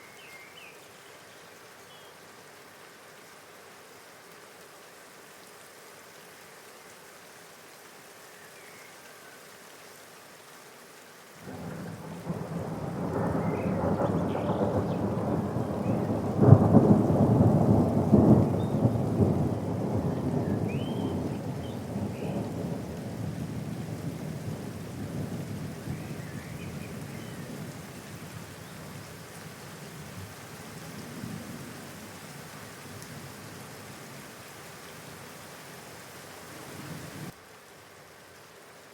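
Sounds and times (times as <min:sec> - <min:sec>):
steady rain: 0:00.0 - 0:38.9
thunder rolling: 0:11.5 - 0:26.1.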